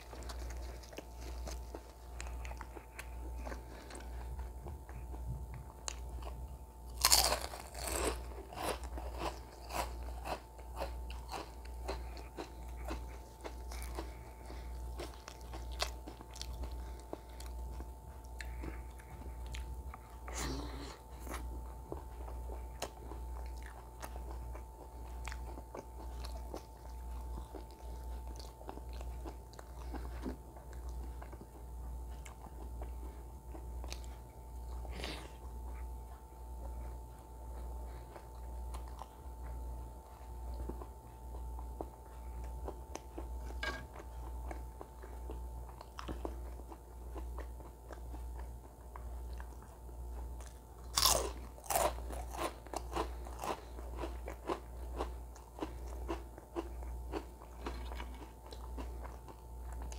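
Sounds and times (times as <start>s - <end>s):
crunching snack chips: 0.0s - 4.2s, 5.9s - 17.4s, 50.5s - 59.9s
low electrical hum: 0.0s - 59.9s.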